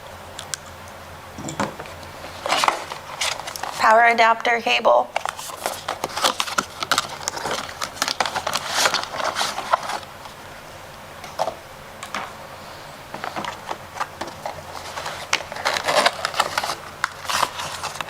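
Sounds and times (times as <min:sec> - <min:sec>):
packaging rustling: 0:01.6 - 0:03.9, 0:05.1 - 0:10.4, 0:13.1 - 0:18.0.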